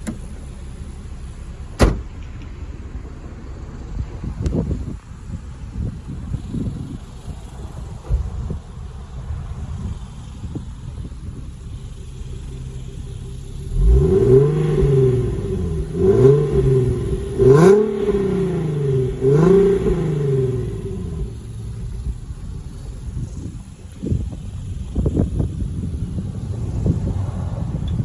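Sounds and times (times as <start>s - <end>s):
car engine idling and revving: 0.0s - 28.0s.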